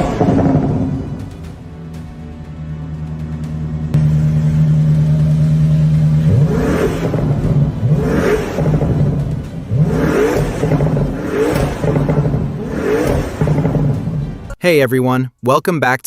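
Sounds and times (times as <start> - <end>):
car engine revving: 0.0 - 14.5.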